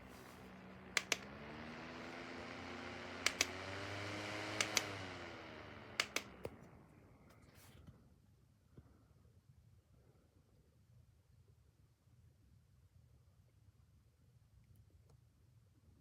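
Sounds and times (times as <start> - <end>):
fan motor humming: 0.0 - 7.6.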